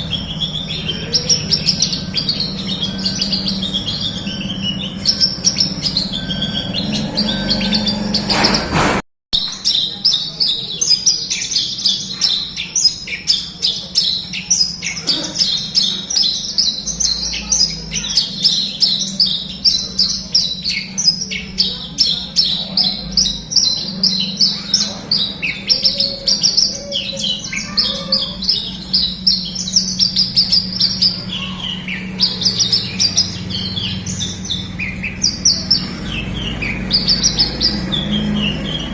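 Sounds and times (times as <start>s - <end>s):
bird singing rapid chirps: 0.0s - 38.9s.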